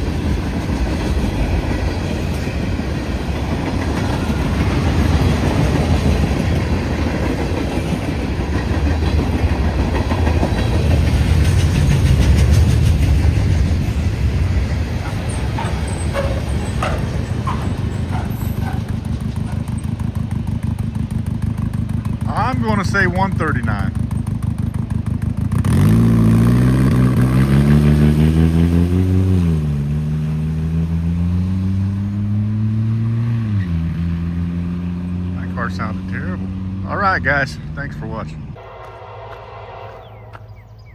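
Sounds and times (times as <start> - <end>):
freight train wheels rumbling: 0.0 - 40.9
car engine with rough exhaust: 14.9 - 38.6.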